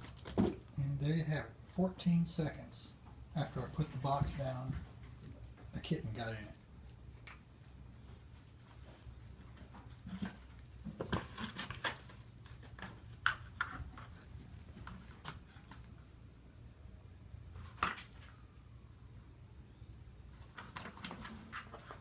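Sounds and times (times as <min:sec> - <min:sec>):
low steady hum: 0:00.0 - 0:22.0
kitten scratching on cardboard: 0:20.3 - 0:22.0.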